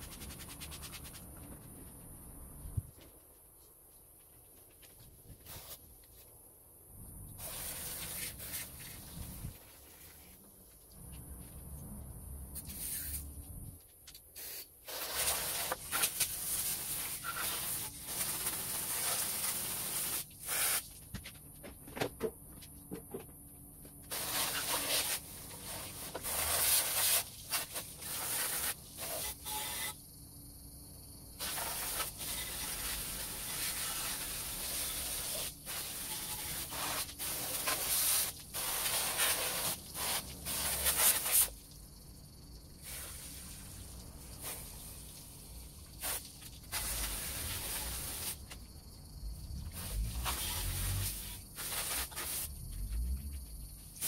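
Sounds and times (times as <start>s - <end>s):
aerosol spray can hissing: 14.4s - 20.9s, 50.1s - 52.5s.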